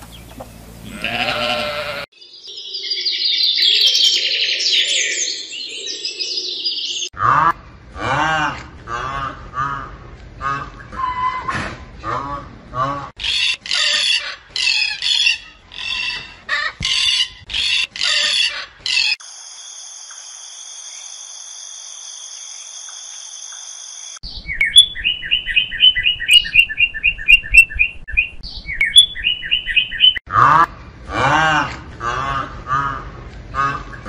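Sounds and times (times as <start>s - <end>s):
macaw squawking: 13.1s - 19.2s.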